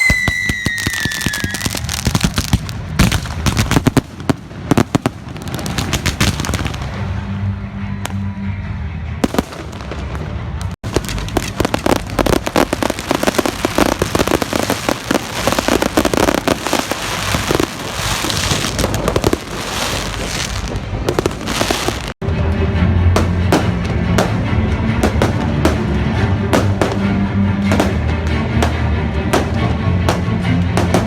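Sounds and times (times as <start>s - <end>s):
fireworks bangs and crackles: 0.0s - 22.2s, 23.1s - 31.0s
music: 0.0s - 31.0s.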